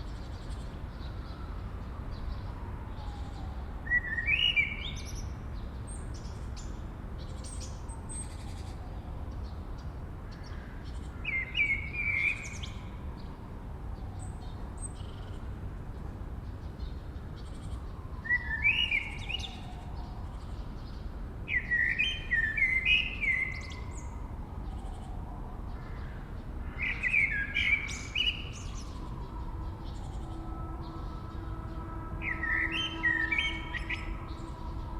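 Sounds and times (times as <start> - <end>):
high bird chirps: 26.8 - 34.9.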